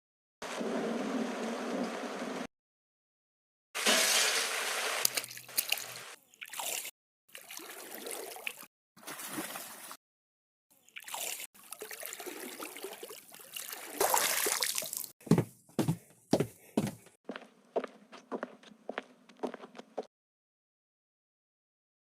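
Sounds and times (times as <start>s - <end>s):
water trickling and splashing: 3.8s - 10.0s, 10.7s - 15.2s.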